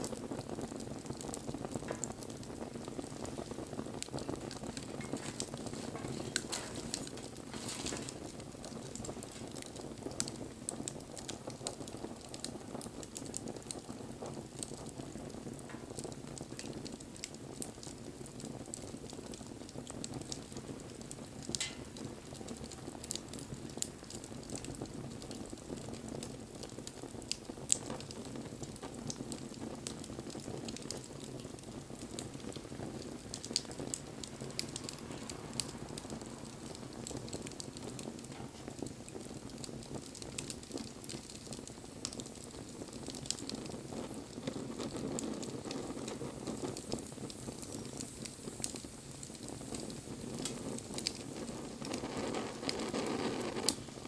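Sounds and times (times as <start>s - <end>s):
bonfire flames rushing: 0.0s - 54.0s
burning wood crackling and popping: 0.0s - 54.0s.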